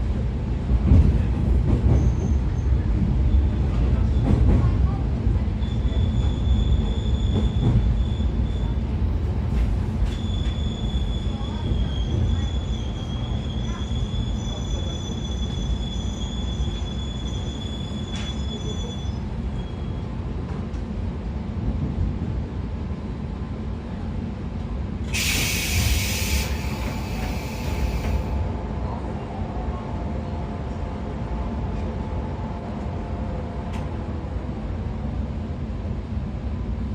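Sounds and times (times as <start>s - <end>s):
train wheels rumbling on rails: 0.0s - 36.9s
high wheel squeal: 10.1s - 20.0s
loud hiss: 25.2s - 28.3s.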